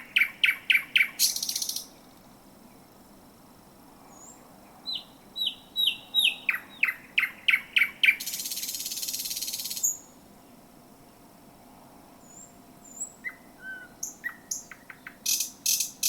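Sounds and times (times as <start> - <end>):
bird singing whistled notes: 0.0 - 2.0, 4.1 - 10.2, 12.2 - 16.0.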